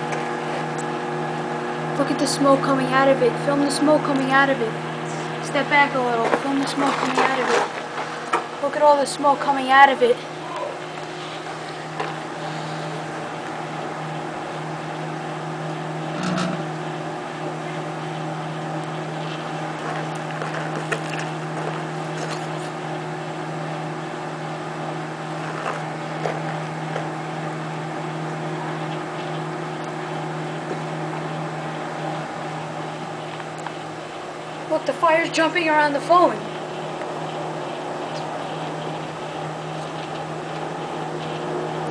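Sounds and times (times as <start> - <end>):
microwave oven humming: 0.0 - 41.9.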